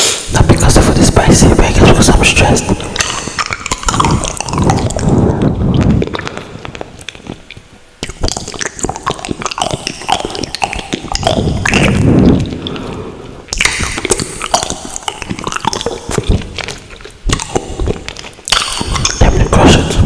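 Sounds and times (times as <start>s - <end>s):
wet chewing of noodles: 2.7s - 19.2s.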